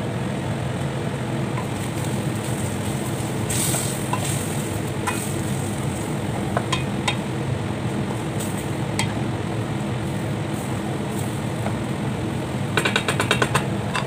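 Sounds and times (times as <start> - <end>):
steady low hum: 0.0 - 14.0
meat and onions frying in a pot: 0.1 - 14.0.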